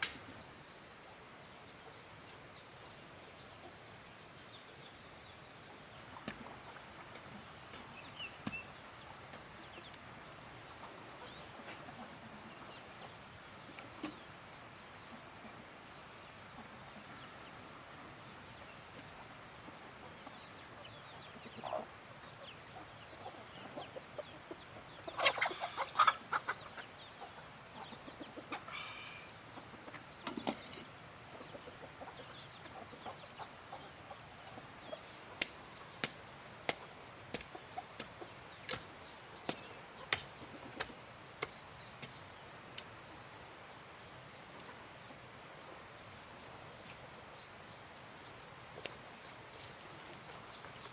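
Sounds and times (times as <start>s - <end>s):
chickens clucking: 10.6s - 14.2s, 19.0s - 42.4s.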